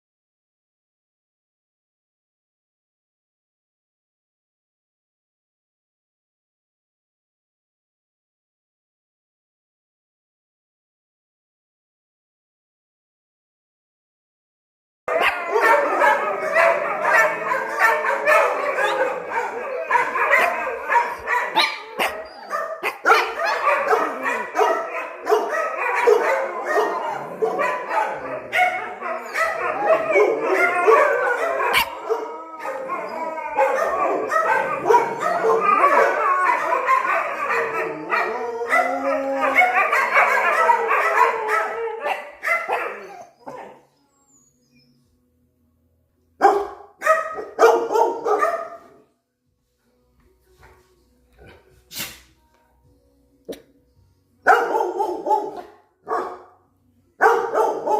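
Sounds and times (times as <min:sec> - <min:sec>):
dogs barking and howling: 0:15.1 - 0:44.1, 0:46.4 - 0:49.1, 0:54.4 - 0:56.6, 0:57.2 - 0:57.9.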